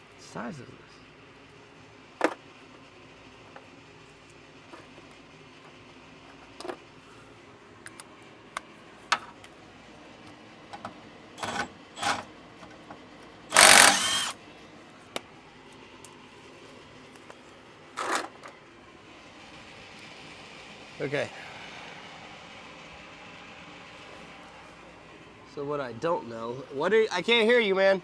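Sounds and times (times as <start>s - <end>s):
tools and metal clicking and knocking: 10.7s - 14.3s, 18.0s - 18.6s
ratchet wrench ratcheting: 13.5s - 14.4s.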